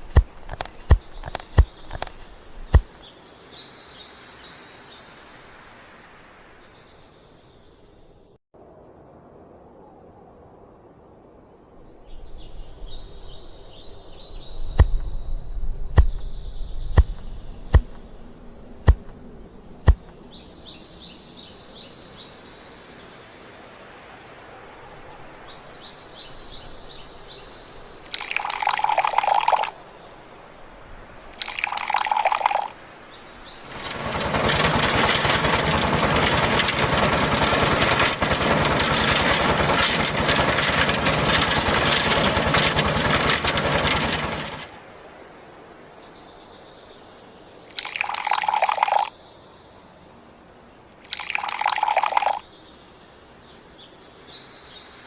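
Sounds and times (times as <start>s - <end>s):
sharp clicks: 0.0s - 2.9s, 17.0s - 18.1s, 18.8s - 19.2s, 19.8s - 20.2s
faint bird chirps: 24.1s - 30.2s, 31.2s - 34.0s, 45.9s - 49.9s
pouring water: 28.0s - 29.8s, 31.2s - 32.8s, 33.7s - 44.8s, 47.6s - 49.1s, 51.0s - 52.4s
bursts of rushing noise: 33.7s - 44.9s.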